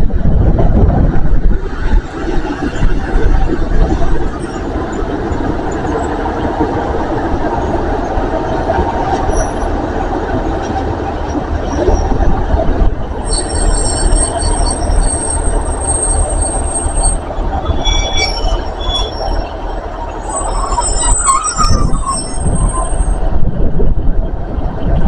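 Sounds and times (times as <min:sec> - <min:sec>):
train rumbling on rails: 0:00.0 - 0:25.0
train wheels squealing: 0:02.4 - 0:12.4, 0:13.2 - 0:23.2.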